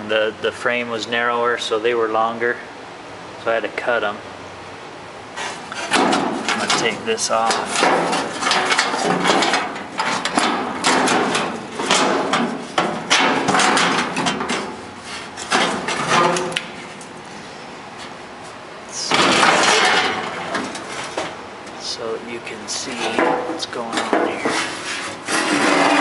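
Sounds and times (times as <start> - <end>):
metal parts knocking and clanking: 5.7 - 14.8, 15.4 - 16.6, 19.1 - 21.4.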